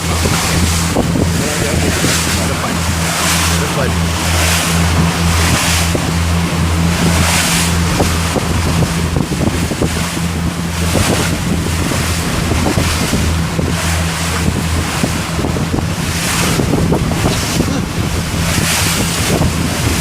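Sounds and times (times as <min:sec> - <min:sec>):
boat engine running: 0:00.0 - 0:20.0
waves and spray rushing: 0:00.0 - 0:20.0
wind buffeting microphone: 0:00.0 - 0:20.0.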